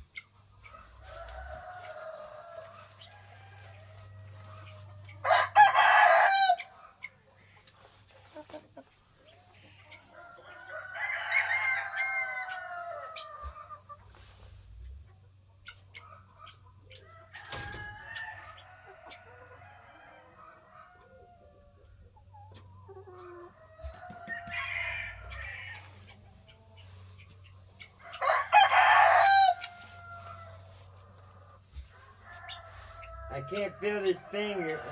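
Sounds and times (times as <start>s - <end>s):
hens clucking: 0.0s - 34.9s
roosters crowing: 0.6s - 6.8s, 9.6s - 13.9s, 17.0s - 21.8s, 23.4s - 26.2s, 27.8s - 34.9s.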